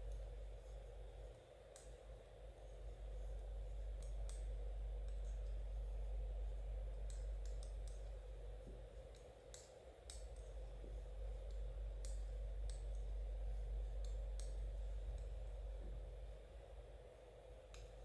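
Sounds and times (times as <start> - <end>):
steady low hum: 0.0 - 18.0
knitting needles clicking: 7.0 - 8.1.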